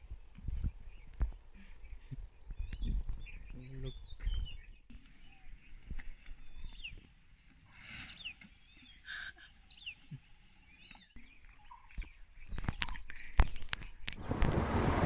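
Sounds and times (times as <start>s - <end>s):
wind buffeting microphone: 0.0s - 7.0s, 11.6s - 15.0s.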